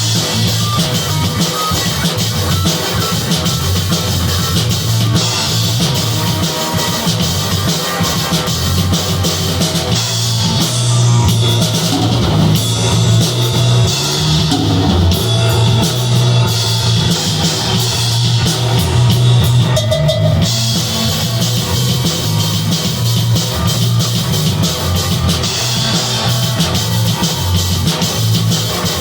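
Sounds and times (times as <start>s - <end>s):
drum kit with cymbals: 0.0s - 29.0s
electric guitar: 0.0s - 29.0s
bass guitar low notes: 8.4s - 29.0s.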